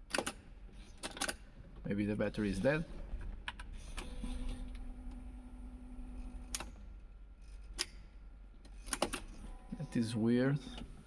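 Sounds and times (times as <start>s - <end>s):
ignition key clicks: 0.0s - 0.4s
steady low hum: 0.0s - 11.0s.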